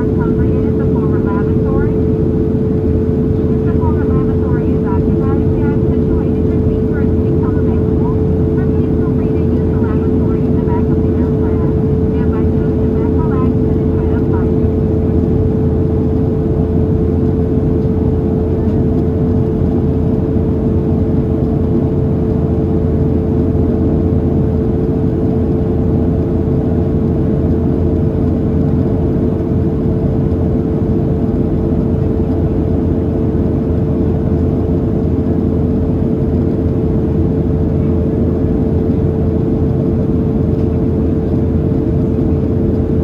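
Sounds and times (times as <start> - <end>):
airflow over fuselage: 0.0 - 22.7
jet engine roar: 0.0 - 23.0
steady hum: 0.0 - 43.0.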